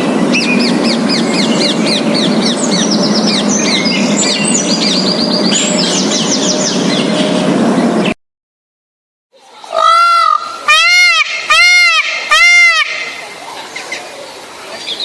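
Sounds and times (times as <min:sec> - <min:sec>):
steady background noise: 0:00.0 - 0:08.1, 0:09.4 - 0:15.0
songbirds chirping: 0:09.4 - 0:15.0.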